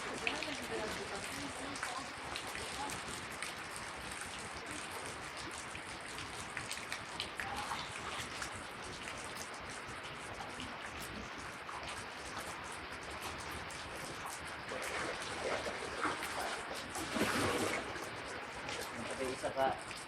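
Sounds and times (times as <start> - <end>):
floodwater rushing: 0.0 - 20.0
rain falling: 0.0 - 20.0
sharp dripping ticks: 0.1 - 15.0, 17.9 - 20.0.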